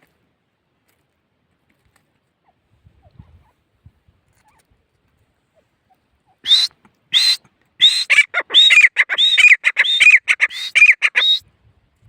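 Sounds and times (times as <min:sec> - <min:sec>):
francolin calling: 0:05.8 - 0:11.4.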